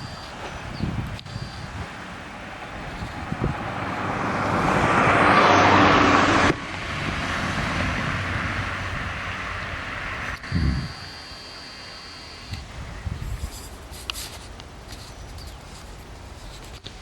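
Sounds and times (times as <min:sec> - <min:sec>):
train rushing past: 0:03.3 - 0:10.4.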